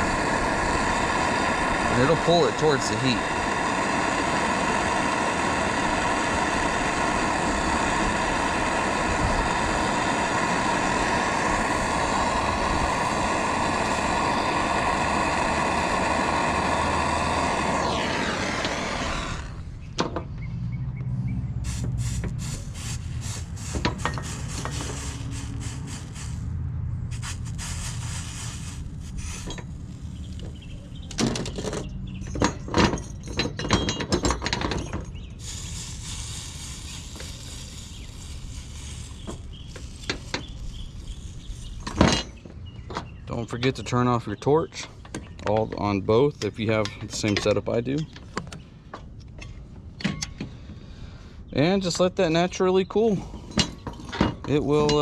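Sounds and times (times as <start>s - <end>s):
torch flame hissing and whistling: 0.0s - 20.0s, 21.6s - 26.5s, 27.1s - 31.7s, 35.2s - 44.5s
low rumble: 2.9s - 31.2s
tools clicking and knocking: 31.1s - 35.2s, 48.1s - 50.5s.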